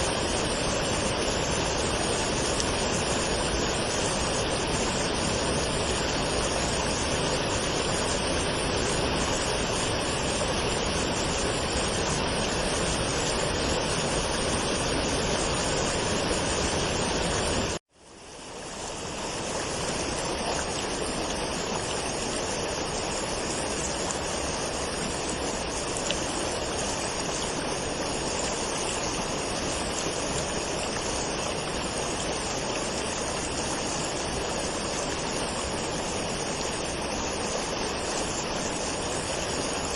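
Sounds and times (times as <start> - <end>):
waterfall rushing: 0.0 - 17.8, 18.7 - 39.9.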